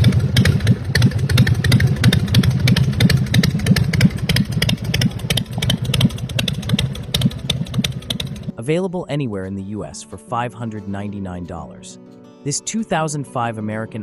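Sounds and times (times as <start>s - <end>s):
motorcycle engine idling: 0.0s - 8.5s.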